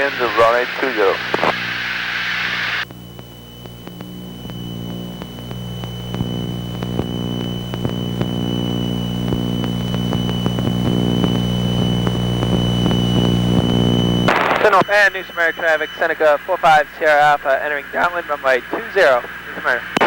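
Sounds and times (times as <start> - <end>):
high-pitched whine: 0.0 - 20.0
propeller engines droning: 0.0 - 20.0
faint clicks: 2.8 - 16.0.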